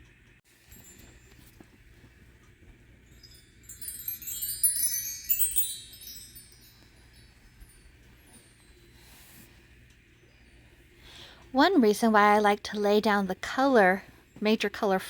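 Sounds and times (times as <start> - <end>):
bright metallic chime tones: 0.6 - 1.7, 3.0 - 9.5.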